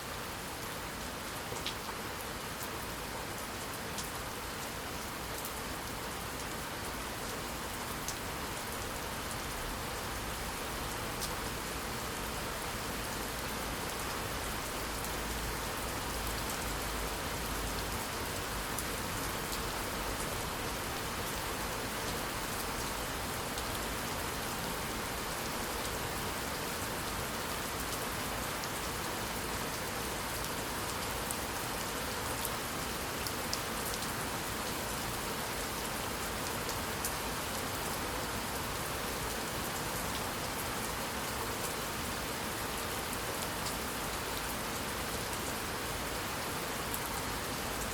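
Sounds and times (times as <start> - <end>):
steady rainfall: 0.0 - 47.9
raindrops ticking on a surface: 1.4 - 20.6.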